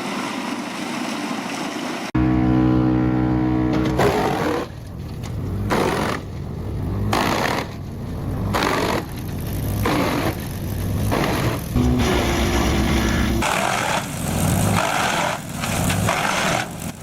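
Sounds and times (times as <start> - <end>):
wood chipper chipping: 8.6 - 17.0.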